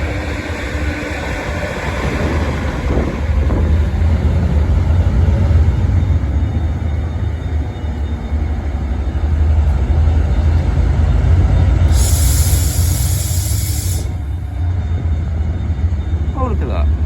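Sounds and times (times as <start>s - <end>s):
diesel locomotive engine rumbling: 0.0s - 17.0s
hiss: 11.9s - 14.3s.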